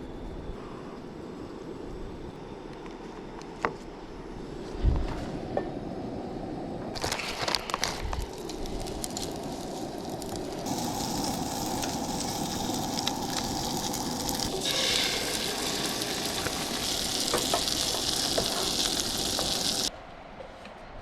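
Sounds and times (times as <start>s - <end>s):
food sizzling in a frying pan: 8.3s - 19.9s.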